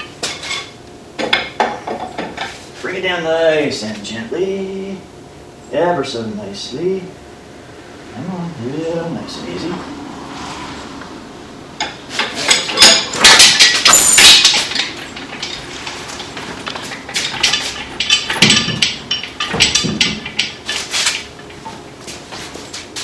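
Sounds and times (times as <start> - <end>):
engine clanking and knocking on hoist: 11.8 - 23.0.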